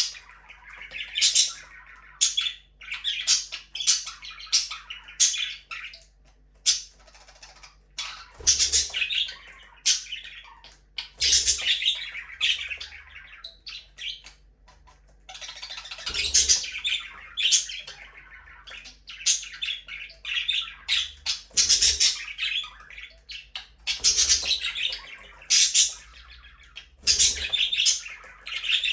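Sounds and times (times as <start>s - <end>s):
budgerigars chirping and squawking: 0.0s - 28.9s.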